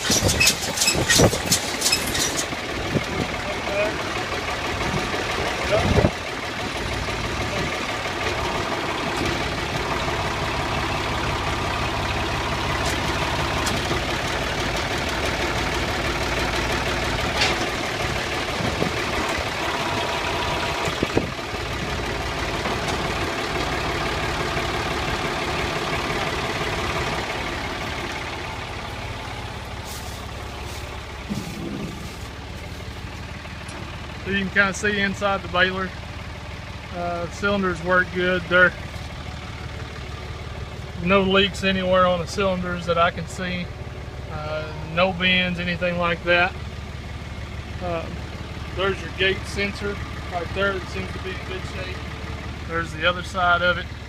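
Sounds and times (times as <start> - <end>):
baler chains turning: 0.0 - 2.6
tractor engine running: 0.0 - 54.0.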